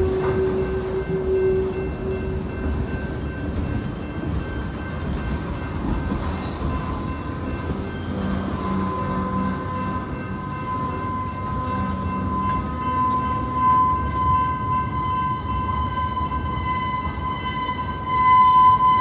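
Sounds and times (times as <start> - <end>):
high-pitched ringing tone: 0.0 - 5.0, 6.7 - 19.0
freight train wheels rumbling: 0.0 - 19.0.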